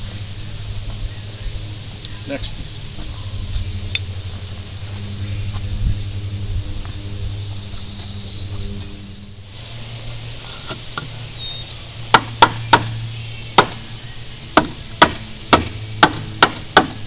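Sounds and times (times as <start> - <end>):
steady low hum: 0.0 - 17.0
hammer nailing fence board: 12.1 - 12.9, 13.6 - 13.8, 14.6 - 17.0.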